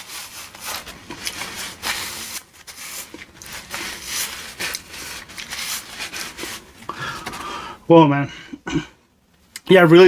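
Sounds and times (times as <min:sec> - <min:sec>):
paper napkin rustling: 0:00.0 - 0:07.4.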